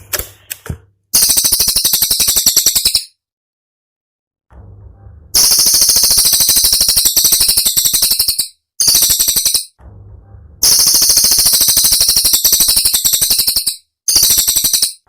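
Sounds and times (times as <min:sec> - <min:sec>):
bird song rapid high notes: 0:01.2 - 0:03.2, 0:05.4 - 0:09.8, 0:10.6 - 0:15.0
faint low hum: 0:04.5 - 0:06.3, 0:09.8 - 0:11.2.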